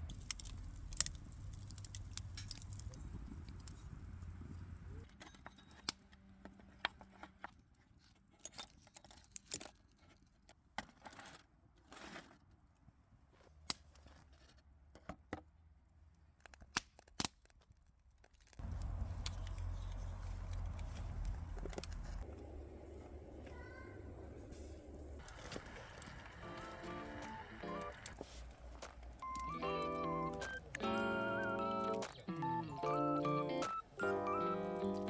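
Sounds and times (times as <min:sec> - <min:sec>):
low rumbling noise: 0:18.6 - 0:29.3.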